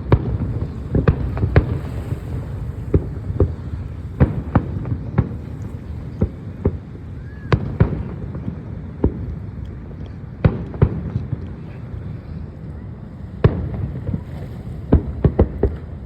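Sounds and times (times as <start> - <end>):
low rumble: 0.0 - 7.1
fireworks bangs: 0.0 - 9.3, 13.3 - 16.0.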